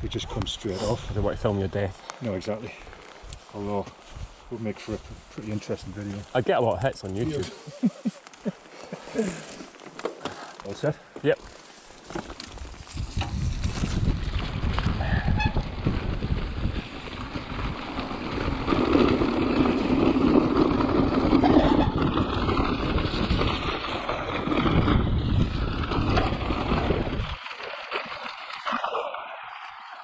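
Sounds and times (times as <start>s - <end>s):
wind buffeting microphone: 0.0s - 1.9s, 12.6s - 27.4s
rushing noise of bike ride: 0.0s - 7.4s, 8.2s - 30.0s.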